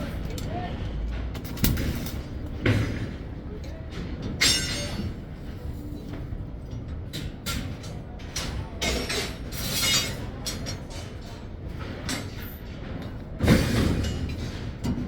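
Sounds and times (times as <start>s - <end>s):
mechanical knocks and clanks: 0.0s - 15.0s.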